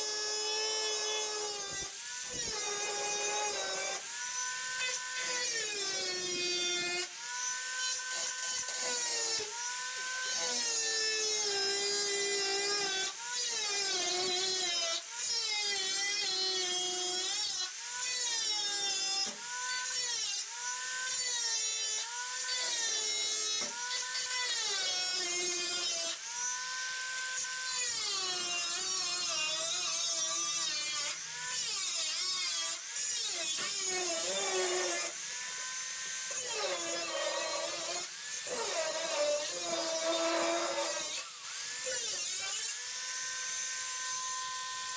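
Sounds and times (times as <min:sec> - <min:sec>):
power drill motor whining: 0:33.6 - 0:44.3.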